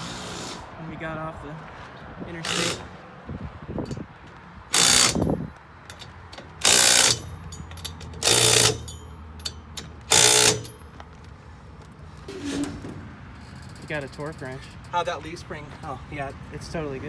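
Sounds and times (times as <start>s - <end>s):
impact wrench hammering: 2.4s - 3.0s, 3.9s - 11.0s.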